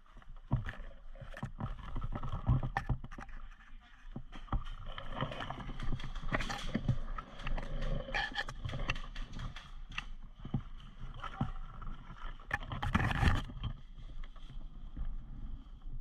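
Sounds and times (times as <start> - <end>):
knocks and clicks: 4.2 - 10.7.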